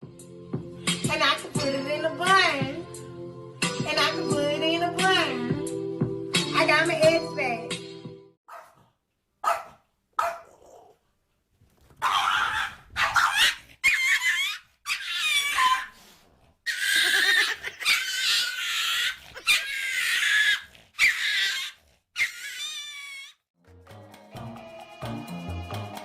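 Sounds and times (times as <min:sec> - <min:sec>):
pet animal crying: 0:16.7 - 0:23.4.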